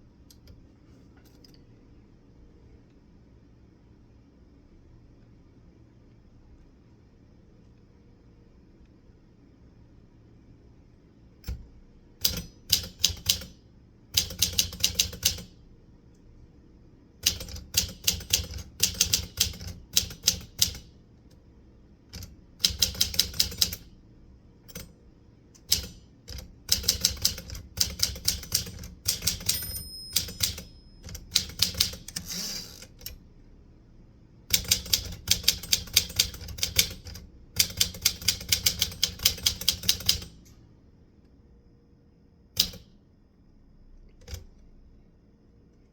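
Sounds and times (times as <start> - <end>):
typewriter keys striking: 12.2 - 13.5, 14.2 - 15.5, 17.2 - 20.9, 22.2 - 23.9, 25.6 - 32.2, 34.5 - 40.3
typewriter bell ring: 29.1 - 32.1.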